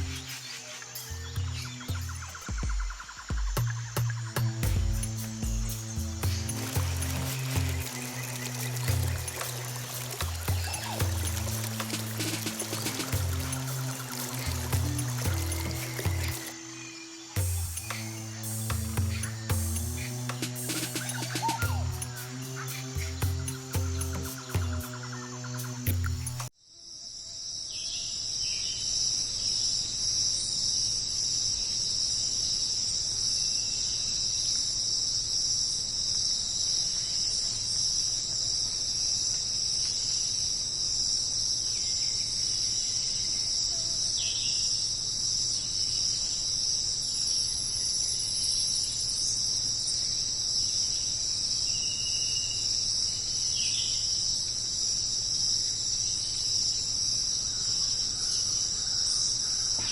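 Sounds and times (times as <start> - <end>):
high-pitched insect chorus: 0.0 - 59.9
short faint lower calls: 17.4 - 23.2.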